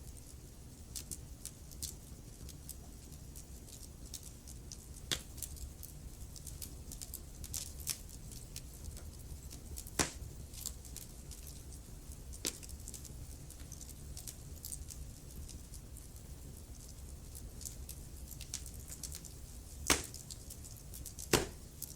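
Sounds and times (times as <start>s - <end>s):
fire crackling: 0.0s - 21.9s
loud fire pops: 9.9s - 10.3s, 19.8s - 20.3s, 21.2s - 21.7s.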